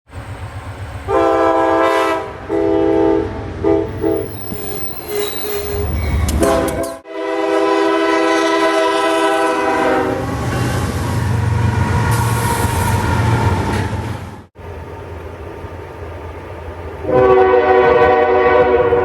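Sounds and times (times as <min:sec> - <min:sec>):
locomotive rumble: 0:00.1 - 0:19.0
locomotive air horn blasts: 0:01.1 - 0:11.0, 0:17.0 - 0:19.0.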